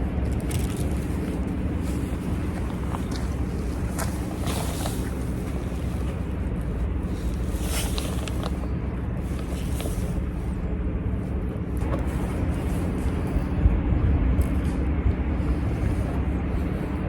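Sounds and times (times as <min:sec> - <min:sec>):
low mechanical hum: 0:00.0 - 0:17.0
faint short rustles: 0:00.3 - 0:13.6.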